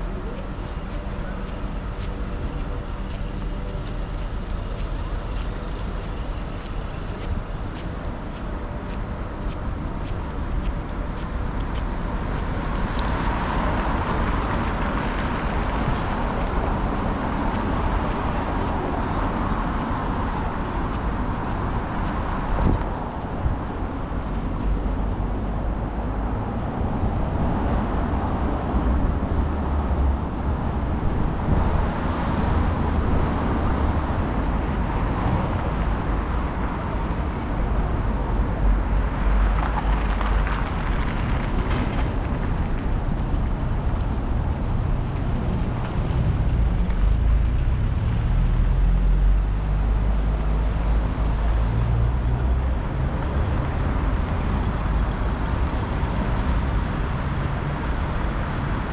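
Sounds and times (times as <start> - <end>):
passing cars: 0.0 - 58.9.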